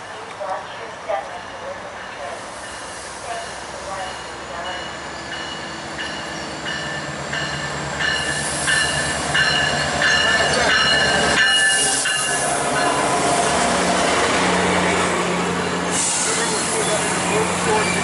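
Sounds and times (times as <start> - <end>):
locomotive bell ringing: 4.0 - 13.3.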